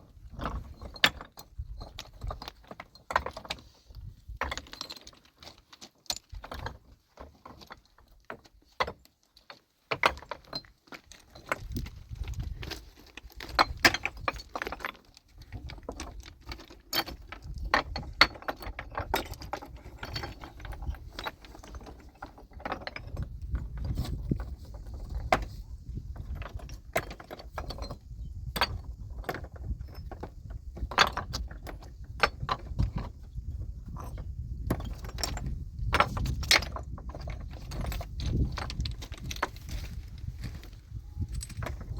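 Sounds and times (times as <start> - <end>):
hard objects clinking and knocking: 41.2 - 41.9.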